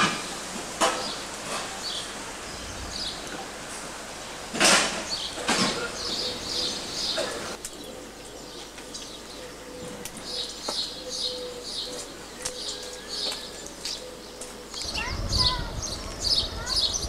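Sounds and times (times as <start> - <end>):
small birds chirping: 0.2 - 17.0.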